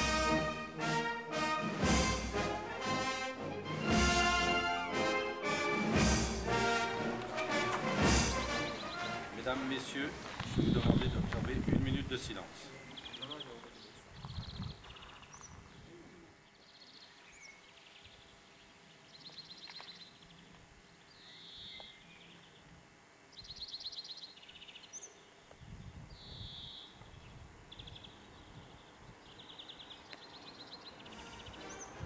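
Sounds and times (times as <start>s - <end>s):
birds trilling and chirping: 6.8s - 11.3s, 12.0s - 32.0s.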